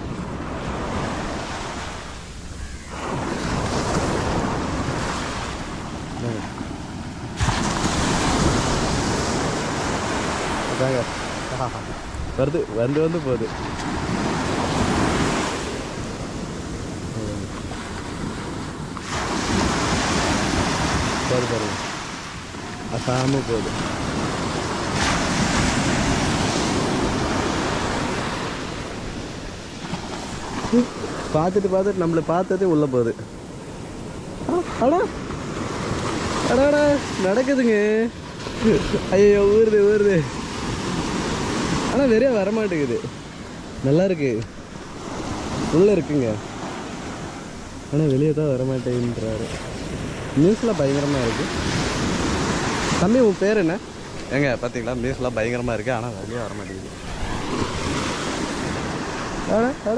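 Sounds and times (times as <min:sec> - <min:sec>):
wind on microphone: 0:00.0 - 0:31.6, 0:48.6 - 0:53.0, 0:53.6 - 0:59.9
sea surf: 0:00.0 - 0:59.9.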